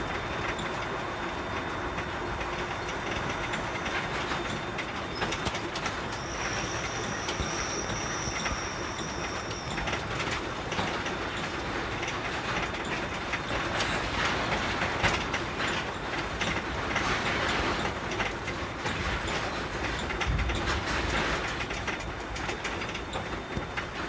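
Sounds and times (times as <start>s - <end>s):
thin high whine: 0.0s - 12.0s
truck engine running: 0.0s - 12.8s
road noise: 0.0s - 15.6s.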